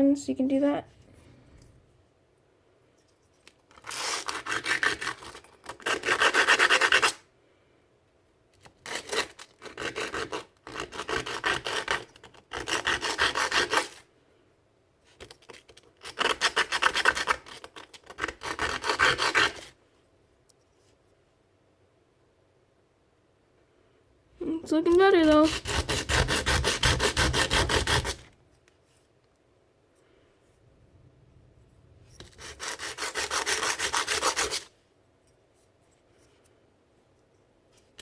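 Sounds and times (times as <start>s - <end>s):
sandpaper scratching by hand: 25.4s - 28.3s, 32.4s - 34.7s.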